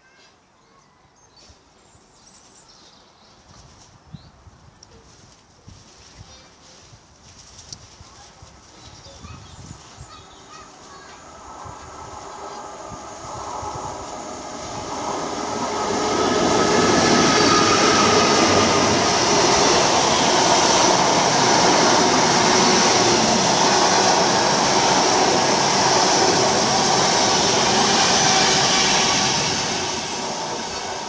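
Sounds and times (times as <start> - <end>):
train passing at speed: 10.1 - 31.0.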